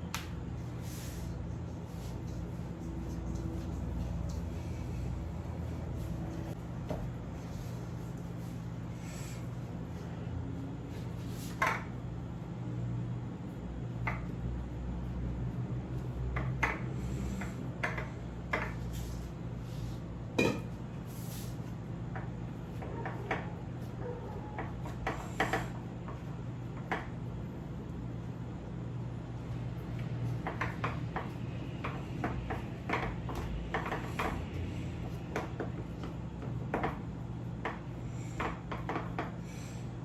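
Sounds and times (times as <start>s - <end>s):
steady low hum: 0.0s - 40.0s
kitchenware clinking: 20.4s - 20.8s.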